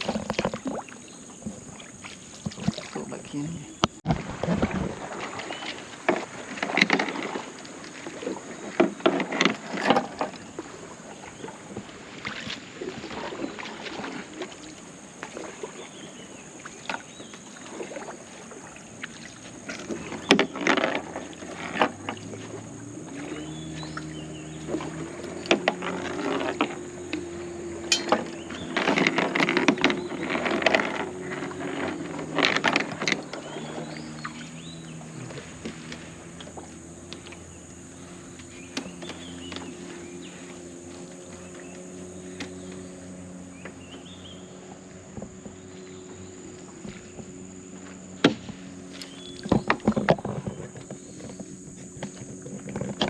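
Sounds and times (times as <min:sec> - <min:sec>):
water splashing from paddling: 0:00.0 - 0:53.0
knocks on boat: 0:45.0 - 0:53.0.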